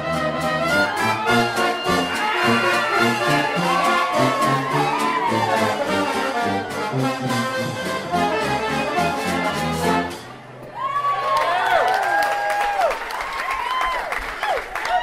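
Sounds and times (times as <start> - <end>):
brass band playing: 0.0 - 10.6.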